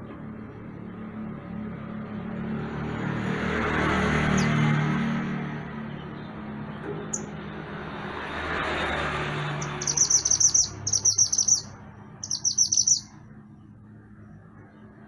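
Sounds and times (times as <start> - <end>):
bird chirping rapidly: 7.1 - 7.4, 9.5 - 13.2.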